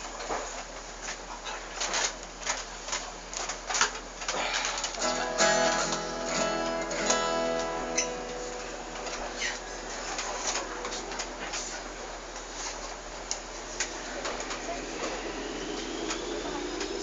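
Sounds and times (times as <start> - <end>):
acoustic guitar strummed: 5.0 - 11.2.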